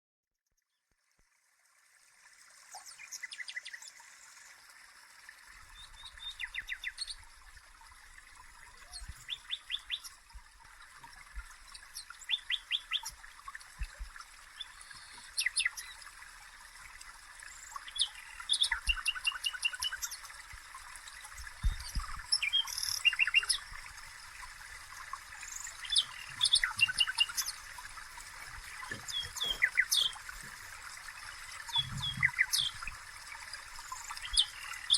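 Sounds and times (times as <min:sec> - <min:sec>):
songbirds trilling: 0:17.7 - 0:20.3, 0:21.4 - 0:34.9.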